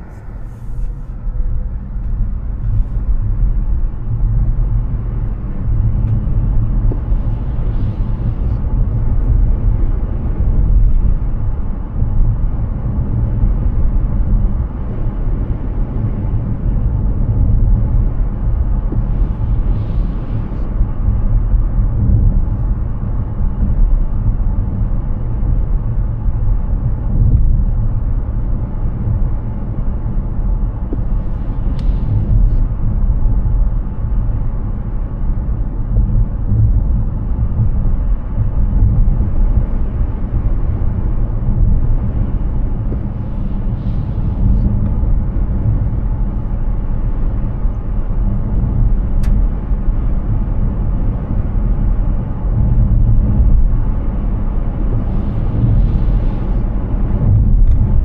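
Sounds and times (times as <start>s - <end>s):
car road and tyre noise: 0.0s - 58.0s
faint click: 49.2s - 49.4s.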